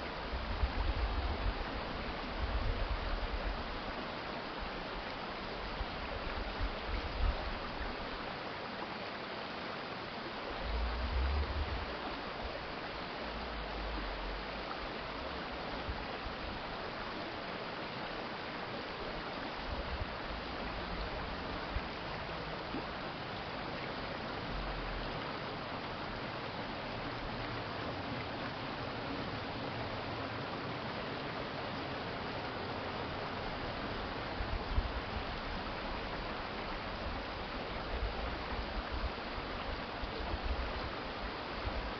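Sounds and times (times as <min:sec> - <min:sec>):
stream water flowing: 0:00.0 - 0:41.9
low rumbles: 0:10.6 - 0:12.1.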